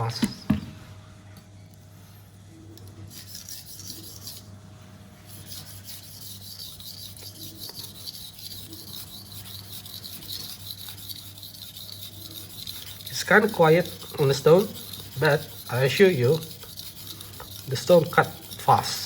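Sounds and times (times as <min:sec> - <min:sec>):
knife scraping on whetstone: 0:03.1 - 0:04.5, 0:05.2 - 0:19.0.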